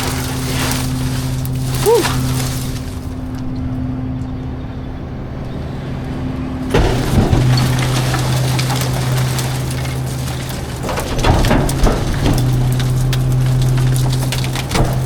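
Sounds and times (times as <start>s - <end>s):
garbage truck engine running: 0.0s - 15.0s.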